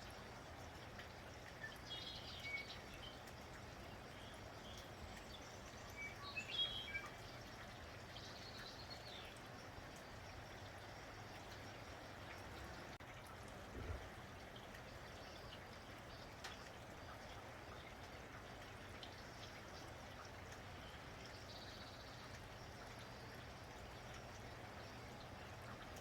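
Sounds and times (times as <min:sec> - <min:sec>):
light rain: 0:00.0 - 0:26.0
birds chirping: 0:01.5 - 0:09.4.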